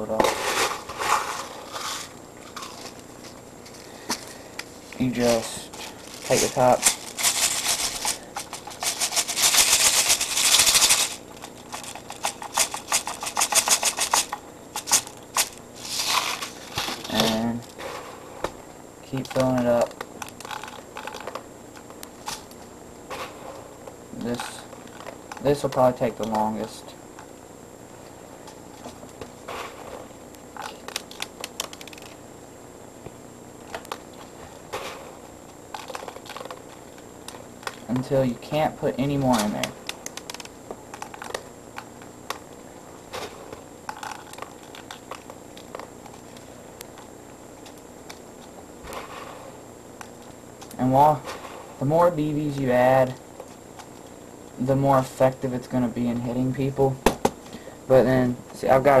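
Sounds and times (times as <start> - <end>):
plastic pellets rattling into capsule: 5.3 - 17.5.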